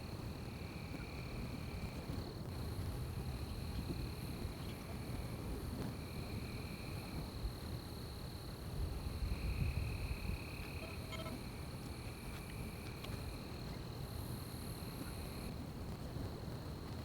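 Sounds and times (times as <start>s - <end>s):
crickets trilling: 0.0s - 15.5s
lower insect trill: 9.0s - 15.5s.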